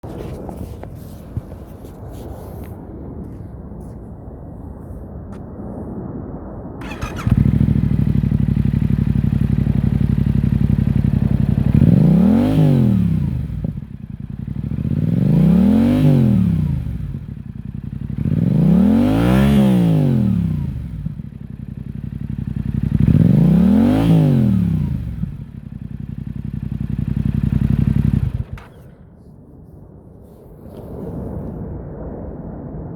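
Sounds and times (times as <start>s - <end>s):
motorcycle engine idling and revving: 6.8s - 29.2s.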